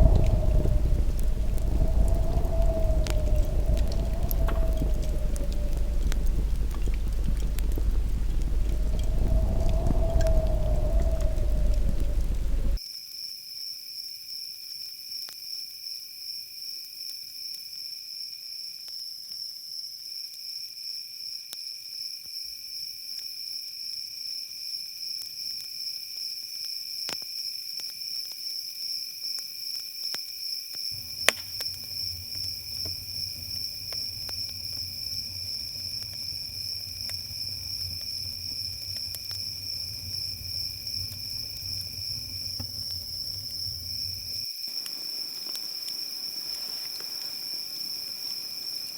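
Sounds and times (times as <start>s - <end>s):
campfire crackling and popping: 0.0s - 12.8s, 31.0s - 47.4s
crickets chirping: 0.0s - 12.8s, 31.0s - 48.9s
low insect call: 0.0s - 12.8s, 31.0s - 48.9s
low rumble: 0.0s - 12.8s, 31.0s - 44.4s.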